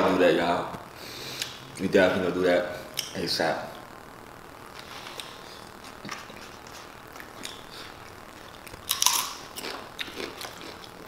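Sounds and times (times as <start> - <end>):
small crackles: 3.9 - 11.0
chewing and crunchy bites: 5.1 - 11.0.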